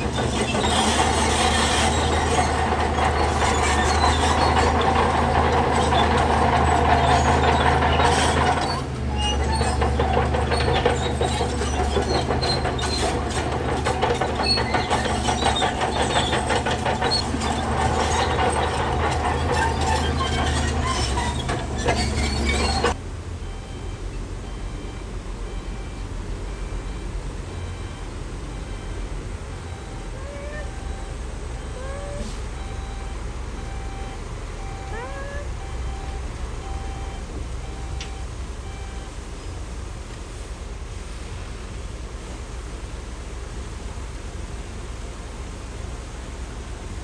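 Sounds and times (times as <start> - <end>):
steel tracks clanking and squealing: 0.0 - 23.0, 27.7 - 38.4
bulldozer diesel engine droning: 0.0 - 40.2.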